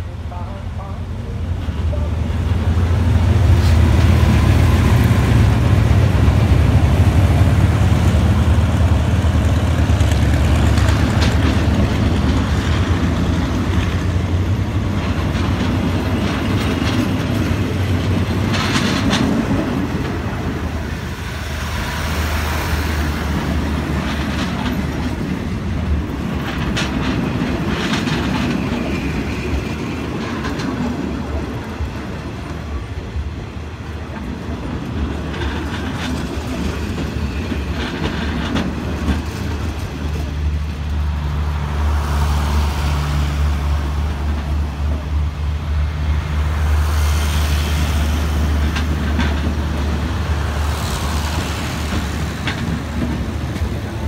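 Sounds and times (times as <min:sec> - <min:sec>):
train rumble and low hum: 0:00.0 - 0:54.0
train wheels clicking over rail joints: 0:01.6 - 0:41.6, 0:46.5 - 0:54.0.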